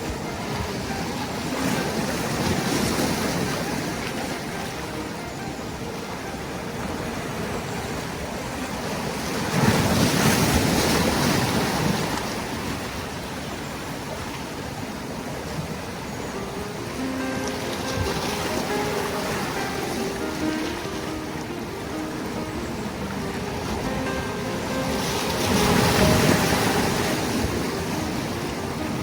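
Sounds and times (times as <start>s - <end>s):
ocean surf washing: 0.0s - 29.0s
wave breaking: 16.4s - 29.0s.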